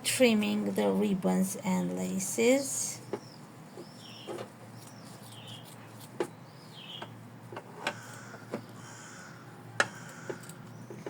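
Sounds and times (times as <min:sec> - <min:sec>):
small bird chirping: 0:03.0 - 0:07.2.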